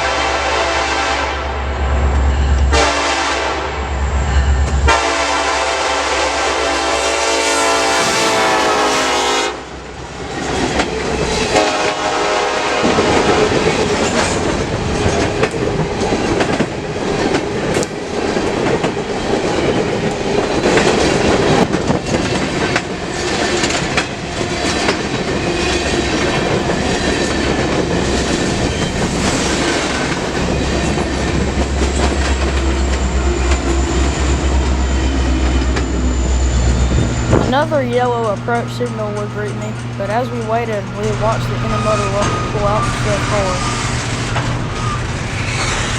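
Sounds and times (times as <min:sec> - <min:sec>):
locomotive air horn: 0:00.0 - 0:01.6, 0:02.7 - 0:03.8, 0:04.8 - 0:09.8, 0:11.4 - 0:13.6
freight train rolling past: 0:00.0 - 0:45.9.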